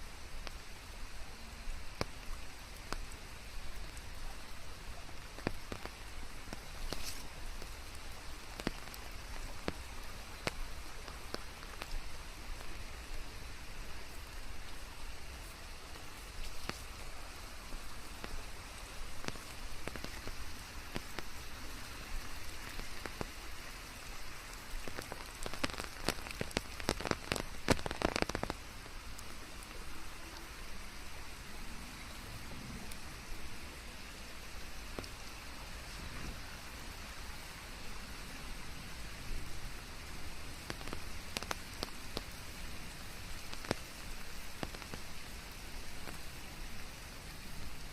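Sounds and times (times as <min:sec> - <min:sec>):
steady rain hissing: 0:00.0 - 0:47.9
white noise: 0:00.0 - 0:47.9.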